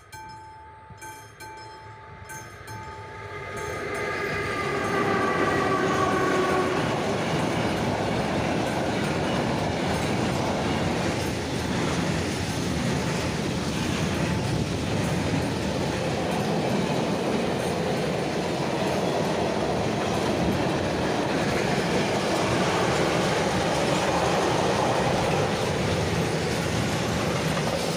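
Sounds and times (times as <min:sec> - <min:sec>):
train wheels rumbling on rails: 0:00.0 - 0:27.9
train horn: 0:01.9 - 0:07.5.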